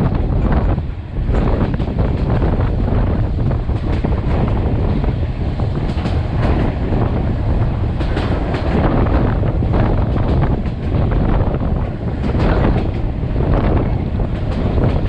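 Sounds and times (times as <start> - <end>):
track clicks and clatter: 0.0 - 15.0
train wheels rumbling on rails: 0.0 - 15.0
wind buffeting microphone: 0.0 - 15.0.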